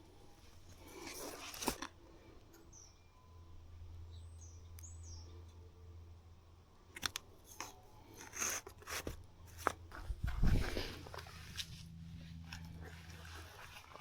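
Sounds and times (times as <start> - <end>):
rustling and handling clicks: 6.9 - 11.7.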